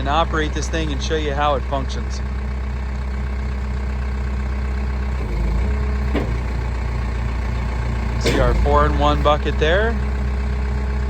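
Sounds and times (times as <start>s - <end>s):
backhoe diesel engine running: 0.0s - 11.0s.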